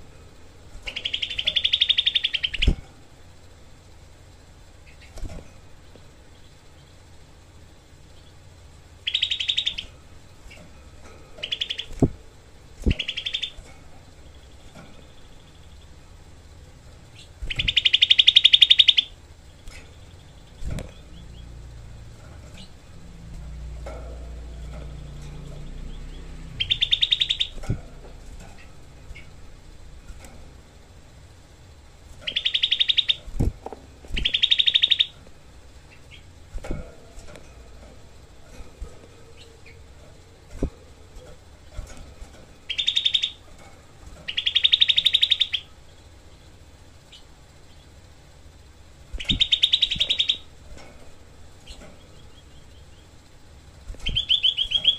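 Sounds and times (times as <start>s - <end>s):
songbird harsh rattling call: 0.8s - 2.8s, 8.0s - 12.1s, 12.8s - 16.3s, 17.1s - 30.3s, 32.1s - 33.4s, 34.1s - 36.4s, 41.2s - 54.9s.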